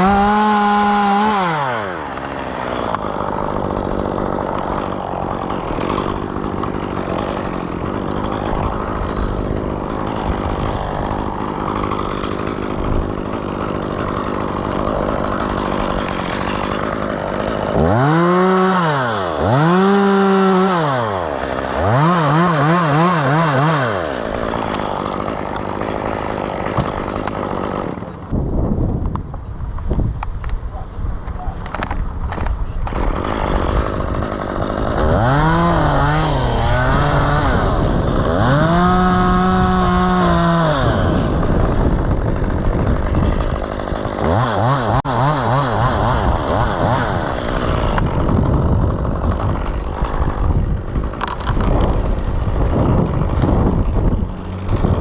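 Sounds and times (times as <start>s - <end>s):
chainsaw revving: 0.0s - 28.5s, 31.2s - 55.0s.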